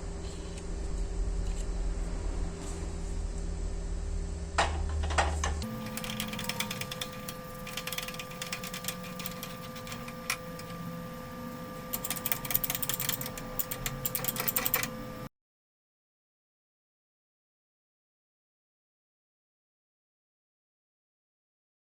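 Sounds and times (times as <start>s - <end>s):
workshop machine whining: 4.6s - 15.3s
rapid clicking and rattling: 5.6s - 10.7s, 11.9s - 14.9s.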